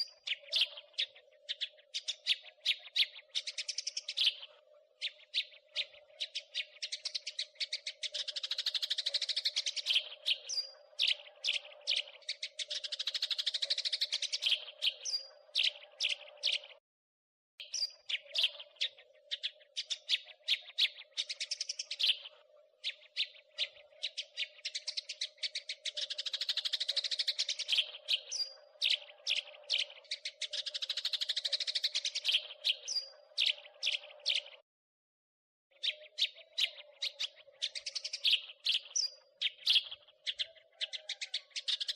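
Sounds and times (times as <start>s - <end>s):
sparrow chirping: 0.0s - 16.8s, 17.6s - 34.6s, 35.7s - 41.9s.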